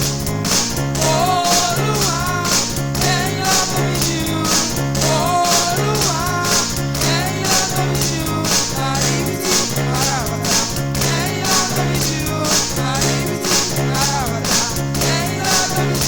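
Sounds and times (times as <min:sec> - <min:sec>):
gospel band playing: 0:00.0 - 0:16.0
person singing melody: 0:00.0 - 0:16.0.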